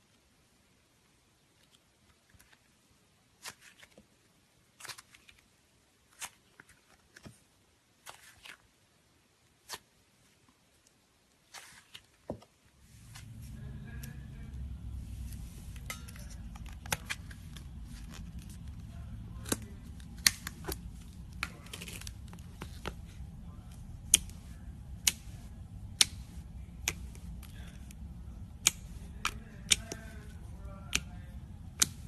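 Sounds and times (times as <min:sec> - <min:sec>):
steady low hum: 0:12.7 - 0:32.0.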